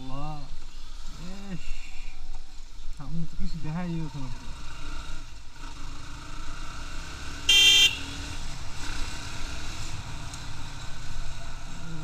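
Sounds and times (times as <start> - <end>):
road noise: 0.0 - 12.0
vehicle horn blast: 7.5 - 8.2.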